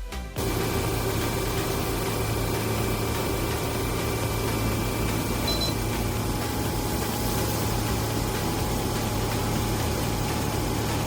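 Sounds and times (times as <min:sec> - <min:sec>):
engine humming steadily: 0:00.4 - 0:11.0
high beep: 0:05.4 - 0:05.8.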